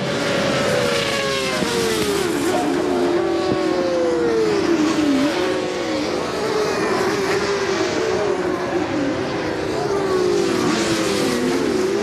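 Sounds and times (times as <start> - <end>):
racing motorcycle engines revving: 0.0 - 12.0.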